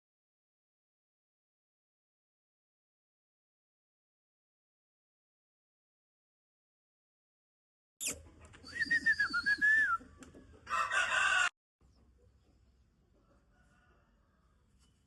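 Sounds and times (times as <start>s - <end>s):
rooster crowing: 10.7s - 11.5s, 13.3s - 14.6s.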